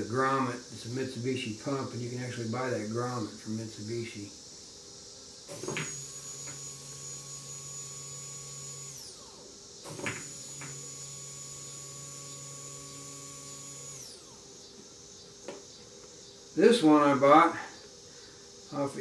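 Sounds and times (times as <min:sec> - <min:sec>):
electric fuel pump humming: 0:03.8 - 0:19.0.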